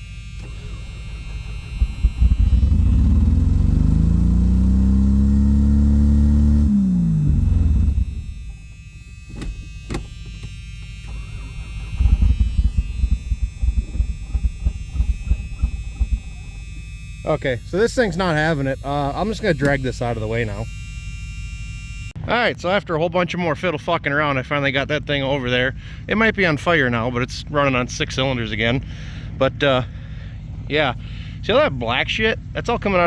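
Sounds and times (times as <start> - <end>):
vehicle engine revving: 0.0 - 22.1.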